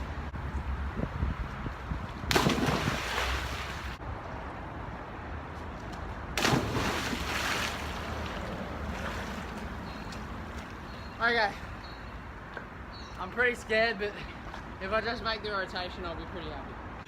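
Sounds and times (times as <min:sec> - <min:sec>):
water splashing: 0:02.3 - 0:04.0, 0:06.4 - 0:10.8.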